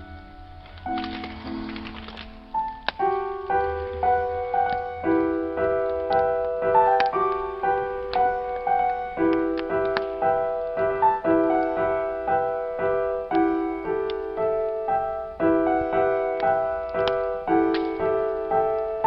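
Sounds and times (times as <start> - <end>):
firewood crackling: 0.0 - 19.0
gentle solo piano: 0.0 - 19.0.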